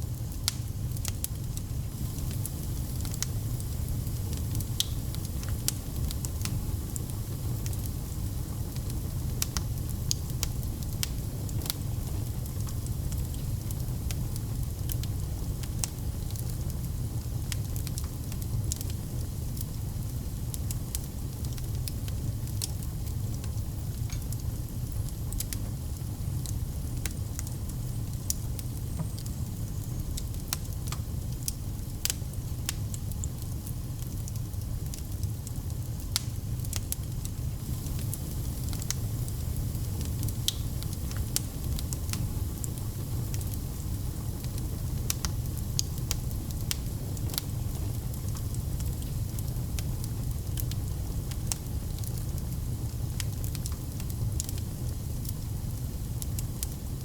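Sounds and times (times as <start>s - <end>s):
fire crackling in fireplace: 0.0s - 57.0s.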